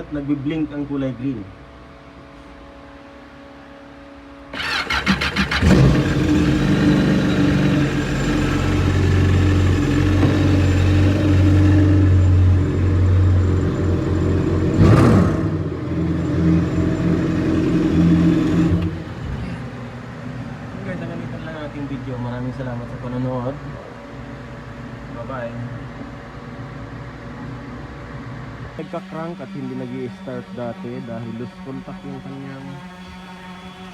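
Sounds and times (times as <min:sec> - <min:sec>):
personal watercraft engine running: 0:04.6 - 0:21.0.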